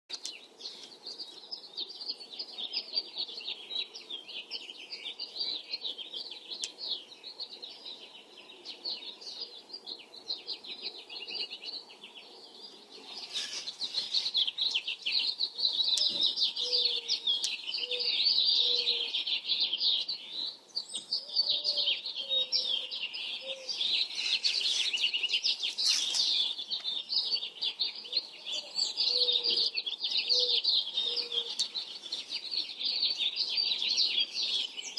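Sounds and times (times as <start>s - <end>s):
birds chirping and singing: 0.1s - 34.9s.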